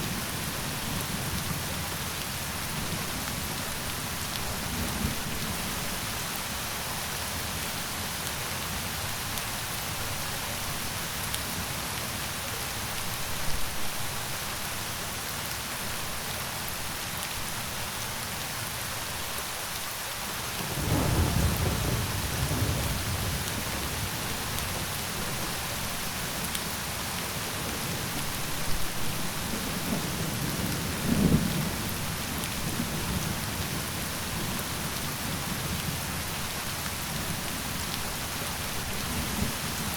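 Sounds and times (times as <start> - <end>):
rain falling: 0.0 - 39.9
thunder rumbling: 20.7 - 25.4.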